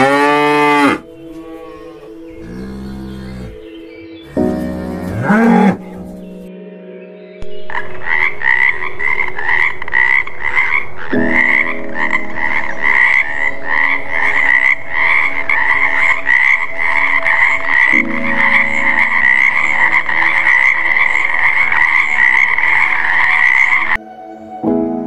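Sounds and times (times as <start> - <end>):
frog croaking: 7.7 - 24.0.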